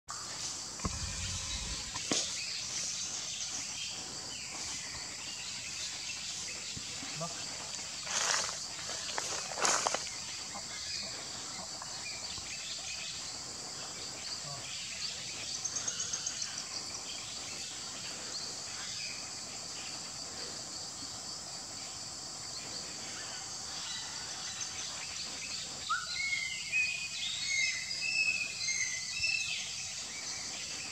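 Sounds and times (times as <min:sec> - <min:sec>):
insects chorus: 0:00.1 - 0:30.9
rapid insect trill: 0:00.1 - 0:30.9
bird calls: 0:23.0 - 0:30.9.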